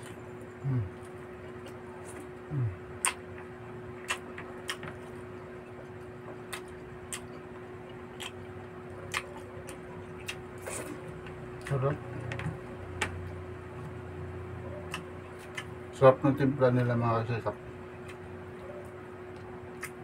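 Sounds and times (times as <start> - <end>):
person chewing food: 0.0 - 13.1, 14.8 - 15.8, 18.0 - 20.0
steady low hum: 0.0 - 20.0
person murmuring mm: 0.6 - 1.1, 2.4 - 2.8.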